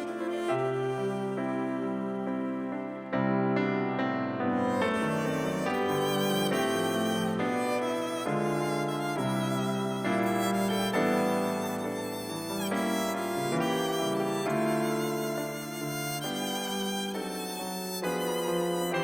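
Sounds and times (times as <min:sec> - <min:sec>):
violin bowed notes: 0:00.0 - 0:03.2, 0:04.4 - 0:19.0.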